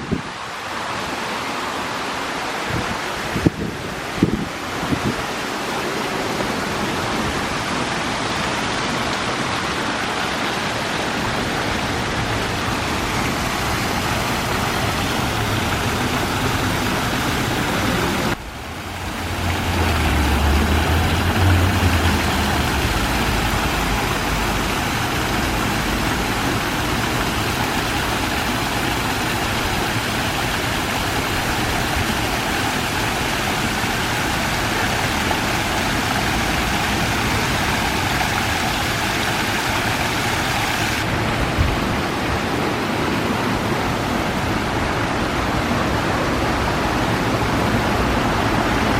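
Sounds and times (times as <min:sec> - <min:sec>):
waterfall fountain rushing: 0:00.0 - 0:48.9
low rumble: 0:41.1 - 0:42.4.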